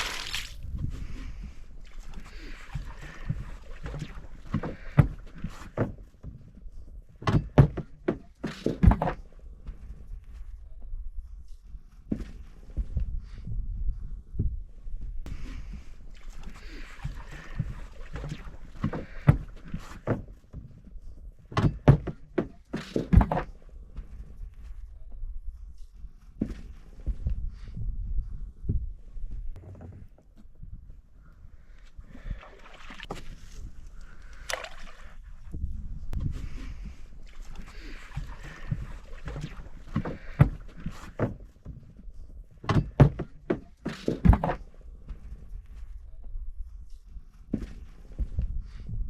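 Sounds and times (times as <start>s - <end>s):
knocks and thuds on boat: 2.7s - 6.5s, 7.2s - 9.9s, 17.0s - 20.8s, 21.4s - 24.2s, 37.6s - 42.0s, 42.6s - 45.4s
dull thuds and knocks: 7.2s - 9.2s, 21.5s - 23.6s, 38.2s - 41.9s, 42.6s - 44.7s.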